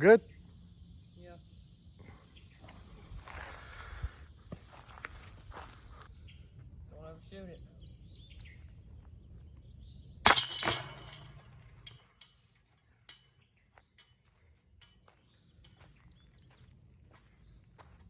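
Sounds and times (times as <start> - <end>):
disc striking metal chains: 10.3 - 12.4.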